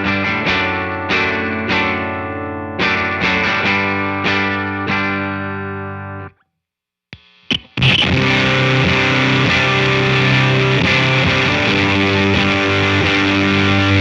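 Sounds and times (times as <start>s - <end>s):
guitar pick noises: 7.1s - 14.0s
distorted guitar chord: 7.2s - 14.0s
fuzzed electric guitar riff: 7.2s - 14.0s.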